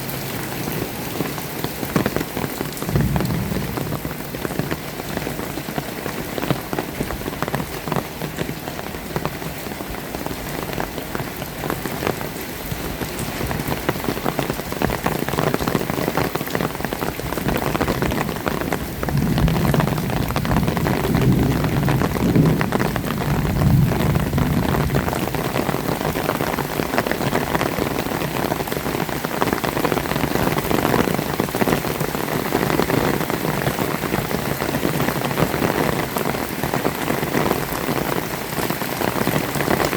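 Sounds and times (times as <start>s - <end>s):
heavy rain pattering: 0.0s - 39.9s
low rumble: 2.8s - 5.2s.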